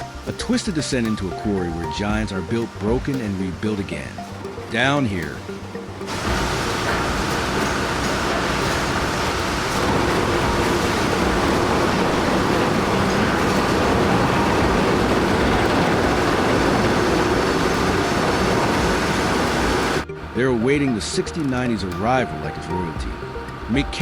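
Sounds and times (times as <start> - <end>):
heavy machinery running: 4.4 - 22.1.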